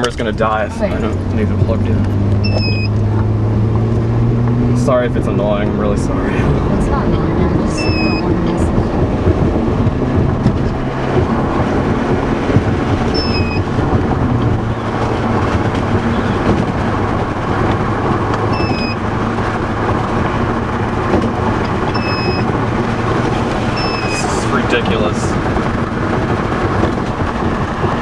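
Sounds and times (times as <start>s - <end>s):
car cabin road and engine noise: 0.0s - 28.0s
short high beep: 2.4s - 3.0s, 13.2s - 13.6s, 18.5s - 19.0s, 22.0s - 22.5s, 23.8s - 24.2s.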